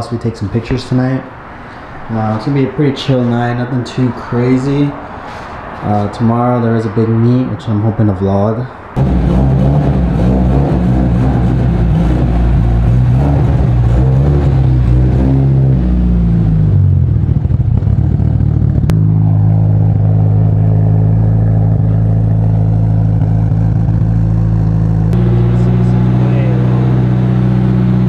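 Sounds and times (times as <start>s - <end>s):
turbocharged car engine running: 9.0s - 28.0s.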